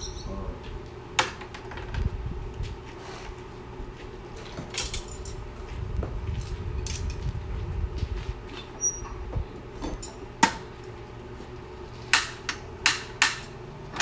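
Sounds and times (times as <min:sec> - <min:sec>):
steady low rumble: 0:02.0 - 0:02.8, 0:05.2 - 0:08.5.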